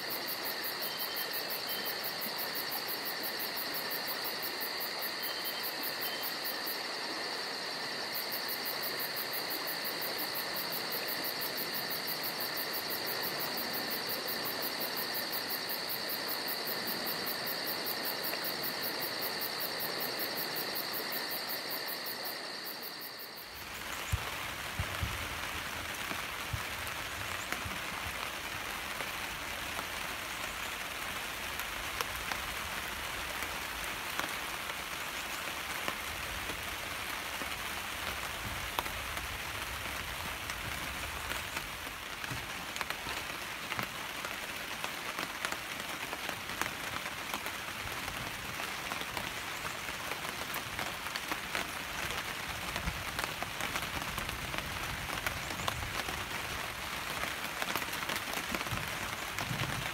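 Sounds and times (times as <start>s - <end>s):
insects trilling: 0.0s - 24.7s
rain falling on a surface: 0.0s - 59.9s.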